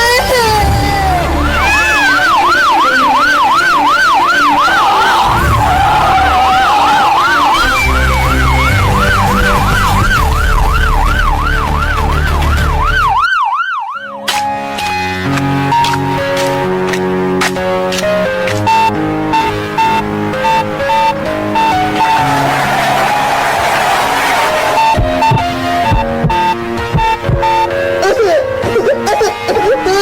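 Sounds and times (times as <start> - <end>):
background music: 0.0 - 30.0
siren yelping: 0.7 - 14.2, 18.6 - 28.3.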